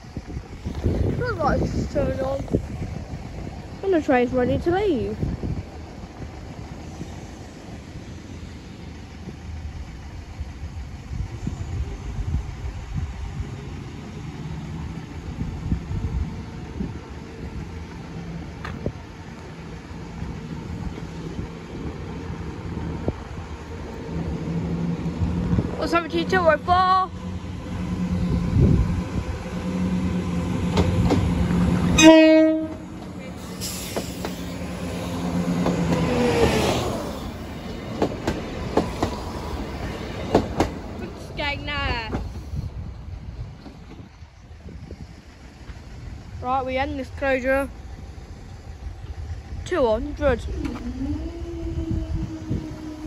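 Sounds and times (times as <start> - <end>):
engine idling: 0.0 - 13.6
rush of passing train: 0.0 - 53.0
train engine passing: 0.0 - 53.0
wheels clicking over rail joints: 12.4 - 53.0.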